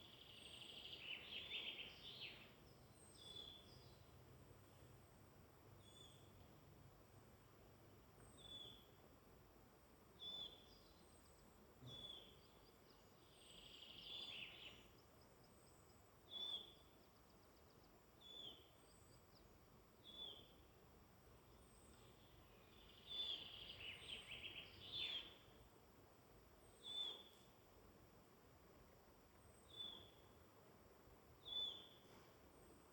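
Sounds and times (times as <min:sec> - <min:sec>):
bird song with rapid trills: 0:00.0 - 0:05.1, 0:05.8 - 0:06.6, 0:08.2 - 0:09.0, 0:10.2 - 0:20.6, 0:21.4 - 0:25.6, 0:26.6 - 0:27.5, 0:29.4 - 0:30.4, 0:31.4 - 0:32.9.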